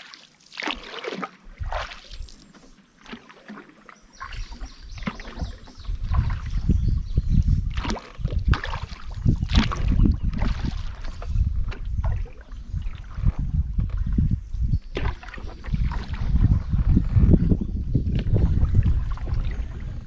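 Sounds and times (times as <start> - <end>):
paddle strokes splashing in water: 0.0 - 17.3, 18.1 - 20.0.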